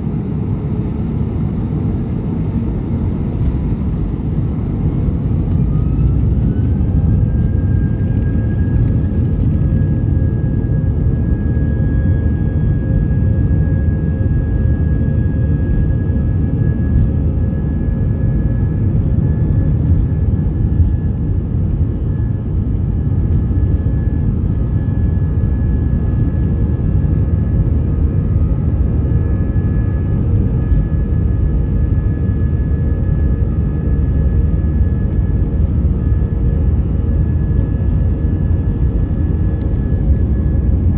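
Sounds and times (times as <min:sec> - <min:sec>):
jet engine rumble and whine: 0:00.0 - 0:40.9.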